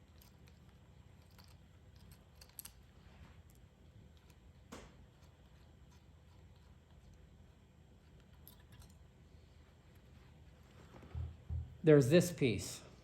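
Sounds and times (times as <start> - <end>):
small metal parts clicking: 1.2 - 2.8.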